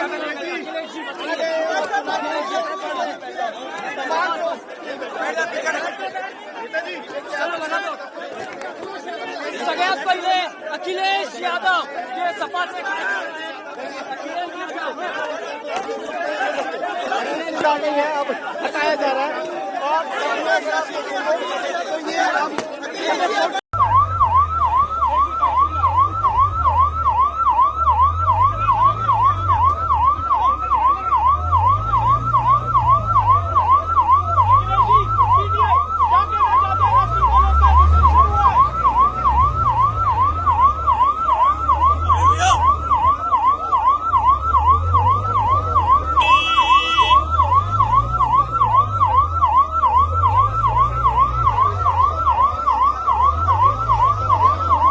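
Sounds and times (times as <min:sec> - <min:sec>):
electronic siren yelping: 0:23.8 - 0:54.9.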